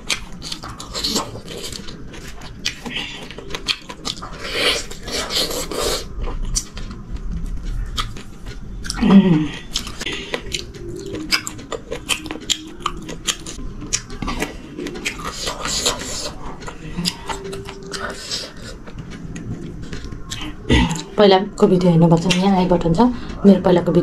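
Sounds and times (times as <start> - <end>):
chewing with wet mouth clicks: 0.0 - 21.2
low humming voice: 8.9 - 11.3, 12.7 - 21.2.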